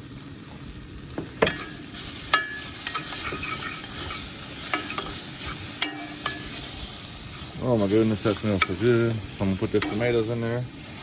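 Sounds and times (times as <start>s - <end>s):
vegetables sizzling in a pan: 0.0s - 11.0s
utensil scraping and knocking pan: 1.2s - 6.9s.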